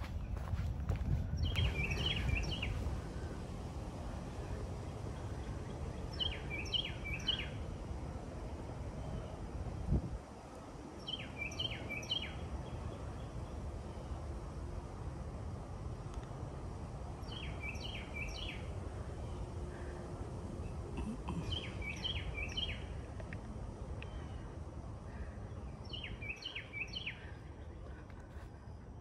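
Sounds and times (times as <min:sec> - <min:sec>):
steady low rumble: 0:00.0 - 0:11.4.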